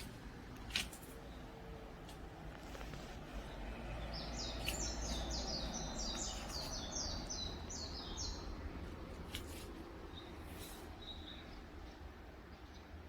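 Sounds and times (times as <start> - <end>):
small bird singing: 3.4 - 13.0.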